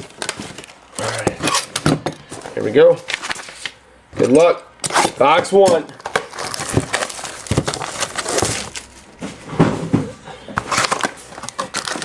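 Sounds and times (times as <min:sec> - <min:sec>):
packaging crinkling and crackling: 0:05.0 - 0:09.1, 0:10.6 - 0:12.0.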